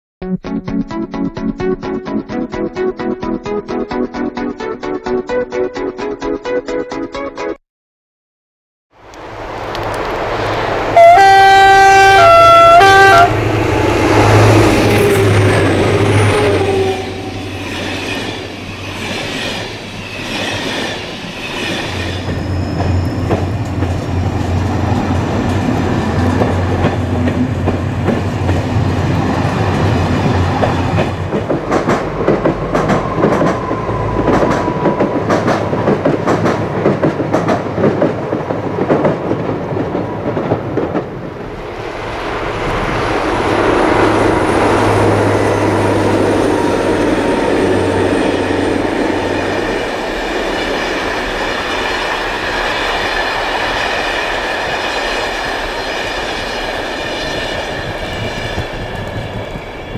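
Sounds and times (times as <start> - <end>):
locomotive two-note horn: 11.0 - 13.6
train wheels clattering over rail joints: 17.7 - 28.8, 29.7 - 41.2.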